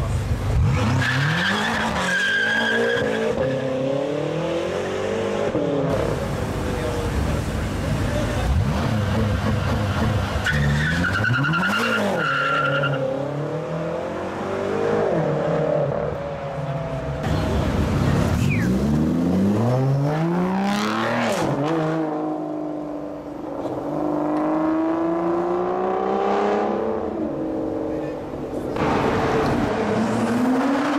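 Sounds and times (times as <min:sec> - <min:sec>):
tyre squeal: 0:10.4 - 0:13.0.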